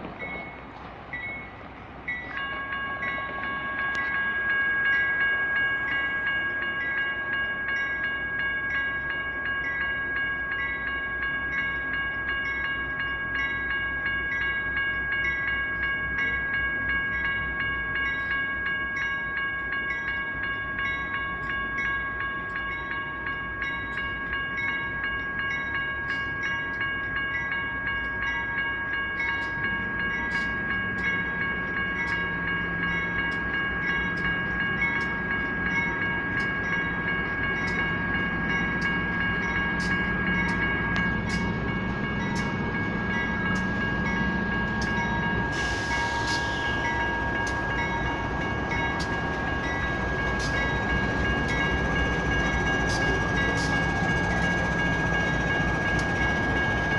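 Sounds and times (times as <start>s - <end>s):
diesel train rumble: 0.0s - 56.9s
railroad crossing bell ringing: 0.0s - 56.9s
brief hiss: 45.5s - 46.8s.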